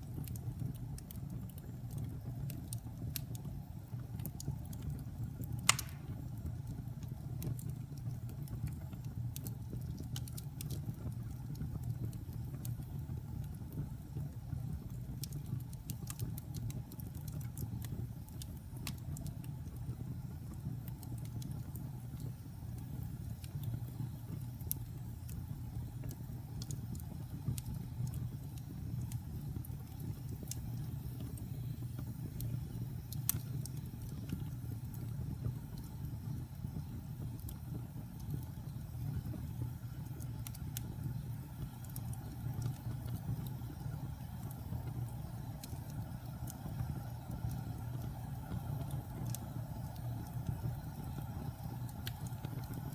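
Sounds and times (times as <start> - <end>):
fire crackling and popping: 0.0 - 52.9.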